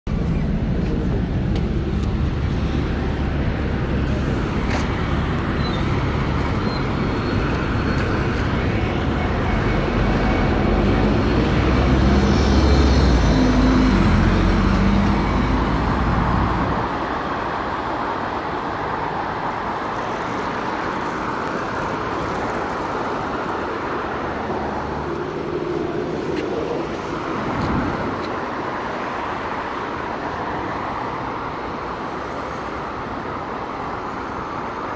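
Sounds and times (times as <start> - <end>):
heavy engine rumble: 0.1 - 17.0
passing car engines: 0.1 - 34.9
tyres hissing on wet road: 3.9 - 8.3.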